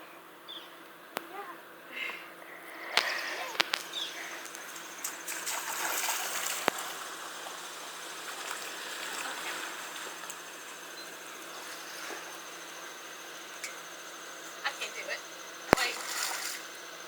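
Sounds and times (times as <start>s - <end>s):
steady rain falling: 2.9s - 15.9s
water trickling: 3.0s - 17.0s.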